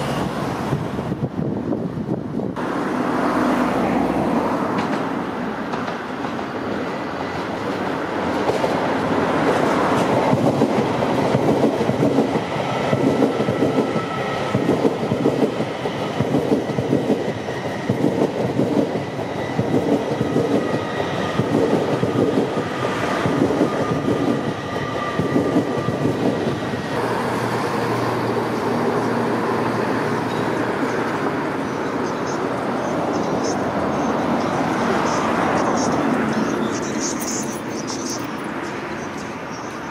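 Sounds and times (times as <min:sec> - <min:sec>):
diesel train approaching: 0:00.0 - 0:39.9
train rumbling: 0:00.0 - 0:39.9.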